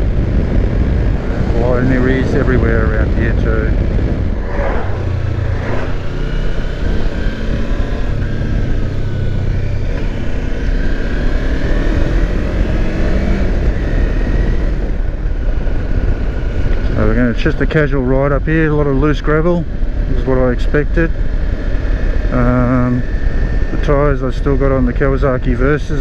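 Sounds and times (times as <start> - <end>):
wind noise: 0.0 - 17.4
road noise: 0.0 - 22.3.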